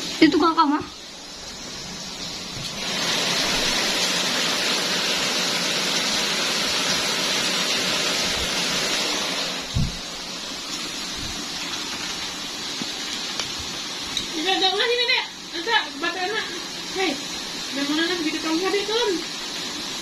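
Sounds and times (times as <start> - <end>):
heavy rain pouring: 0.0 - 20.0
short low thump: 9.7 - 10.1.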